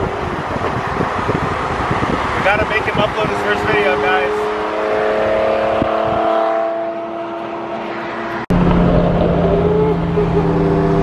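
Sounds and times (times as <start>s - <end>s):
deep engine drone: 7.3s - 11.0s.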